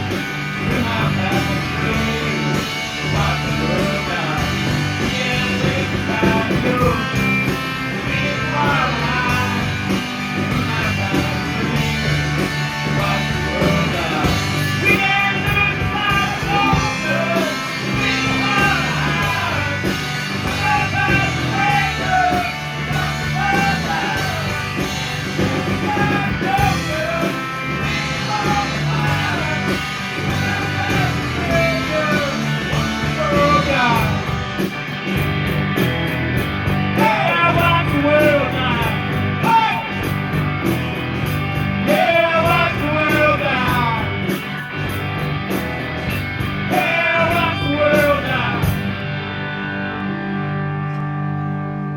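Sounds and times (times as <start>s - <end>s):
person singing: 0.0s - 24.8s, 25.4s - 34.3s, 37.0s - 40.0s, 41.8s - 44.4s, 46.6s - 48.8s
guitar: 0.0s - 51.9s
rock band playing: 0.0s - 51.9s.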